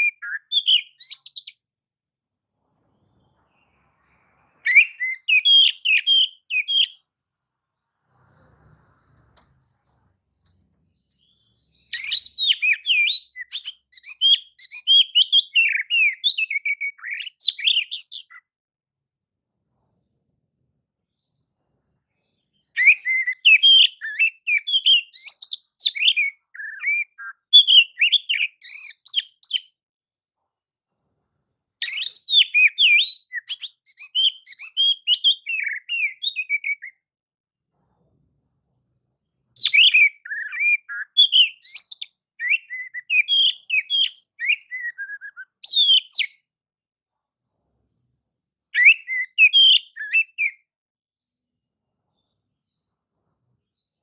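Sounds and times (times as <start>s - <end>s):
bird singing whistled song: 0.0s - 1.6s, 4.6s - 7.0s, 11.2s - 18.5s, 22.8s - 29.7s, 31.8s - 37.0s, 39.6s - 46.4s, 48.8s - 50.7s.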